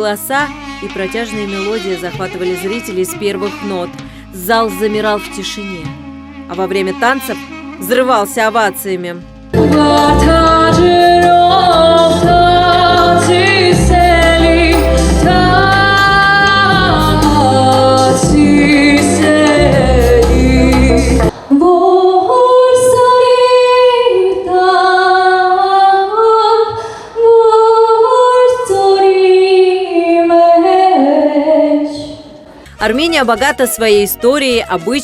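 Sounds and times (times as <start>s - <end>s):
woman singing with band: 9.6s - 25.6s
woman singing long notes: 9.6s - 32.2s.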